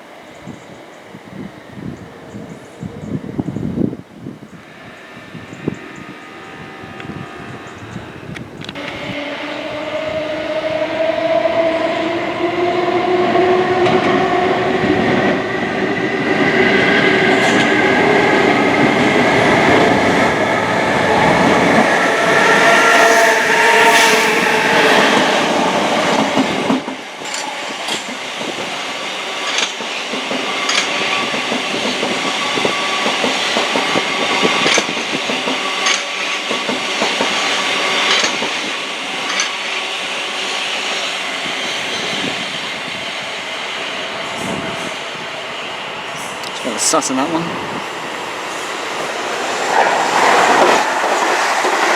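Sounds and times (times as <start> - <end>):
train running noise: 0.0 - 51.9
train whine rising in pitch: 3.5 - 51.9
wheels clicking over rail joints: 26.4 - 39.8.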